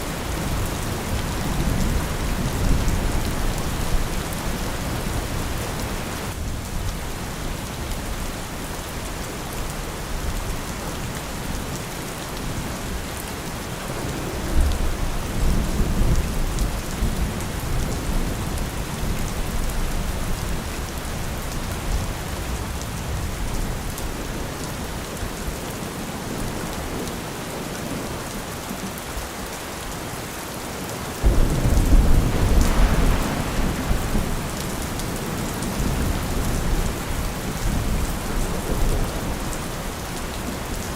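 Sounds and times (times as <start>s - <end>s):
steady rain: 0.0s - 40.9s
thunder rumbling: 13.5s - 20.6s, 31.2s - 40.1s.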